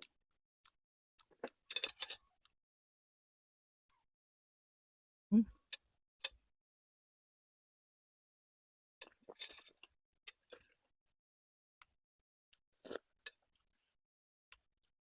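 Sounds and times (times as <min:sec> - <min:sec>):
chewing and wet mouth smacks: 0:12.8 - 0:13.0.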